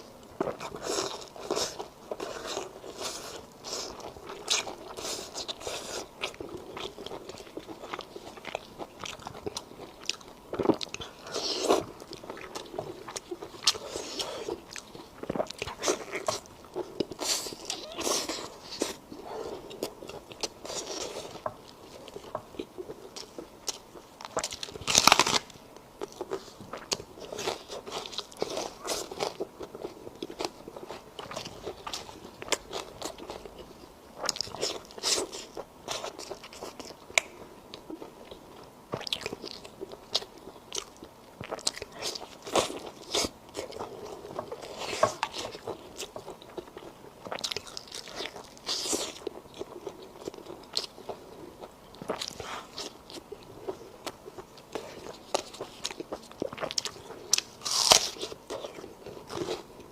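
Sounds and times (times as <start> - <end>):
person biting and chewing food: 0.0 - 33.6, 39.0 - 59.9.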